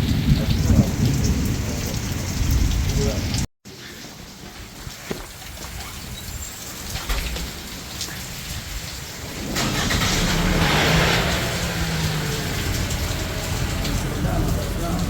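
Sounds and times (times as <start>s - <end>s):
rain falling: 0.0s - 15.0s
car engine running: 9.3s - 15.0s.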